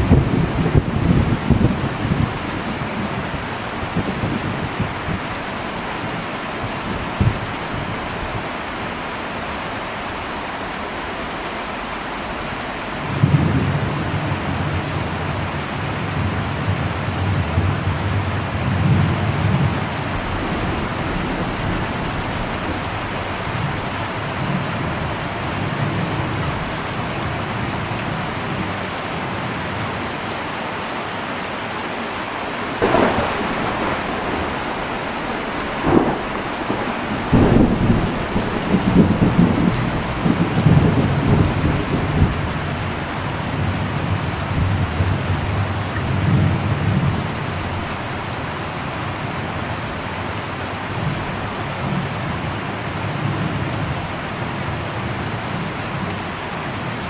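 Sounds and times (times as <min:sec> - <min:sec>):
rolling thunder: 0:00.0 - 0:08.8, 0:13.0 - 0:27.7, 0:32.5 - 0:49.2
heavy rain on a metal roof: 0:00.0 - 0:57.0.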